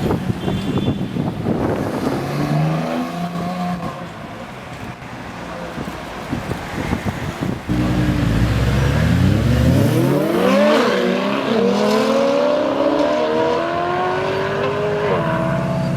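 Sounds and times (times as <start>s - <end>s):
car engine accelerating: 7.7s - 15.7s.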